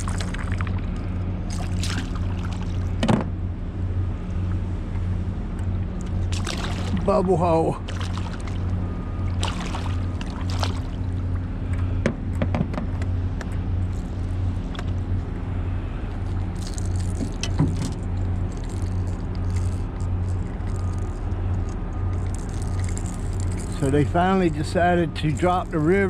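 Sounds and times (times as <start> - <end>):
water splashing: 0.0 - 3.0, 6.0 - 11.5
boat motor humming: 0.0 - 26.0.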